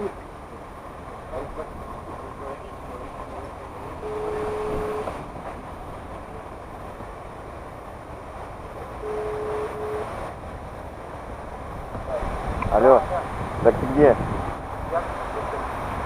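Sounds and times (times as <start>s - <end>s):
vehicle and wind rumble: 0.0s - 16.0s.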